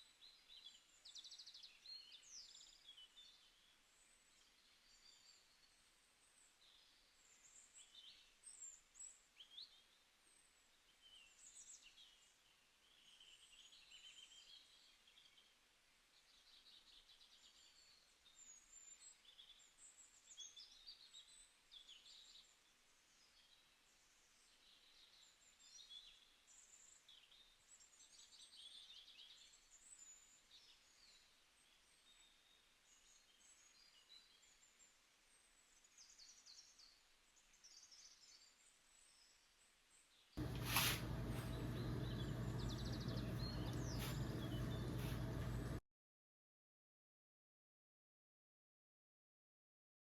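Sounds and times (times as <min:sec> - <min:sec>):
birds chirping and twittering: 0:00.0 - 0:15.5, 0:16.2 - 0:45.8
soft hiss: 0:40.4 - 0:45.8.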